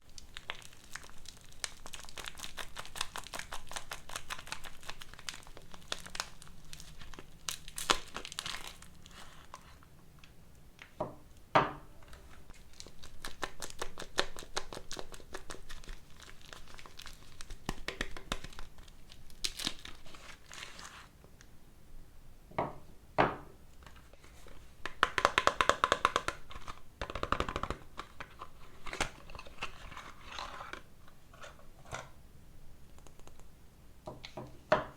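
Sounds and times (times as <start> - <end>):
wrappers crinkling and tearing: 0.0 - 9.9, 12.1 - 21.1.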